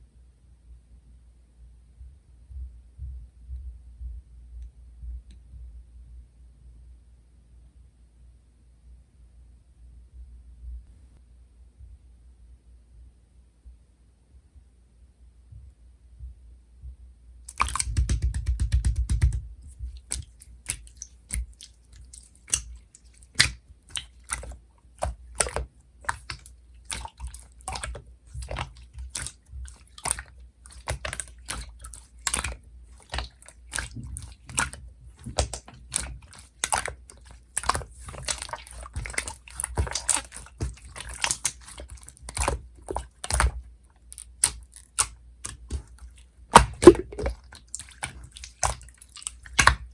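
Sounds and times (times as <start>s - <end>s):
slime sticky clicks and pops: 17.5s - 19.4s, 44.2s - 45.8s, 46.6s - 48.8s.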